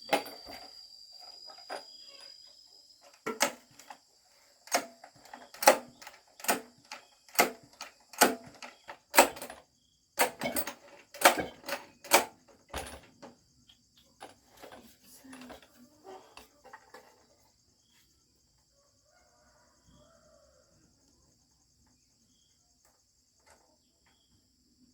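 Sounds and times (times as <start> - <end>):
crickets chirping: 0.0 - 24.9.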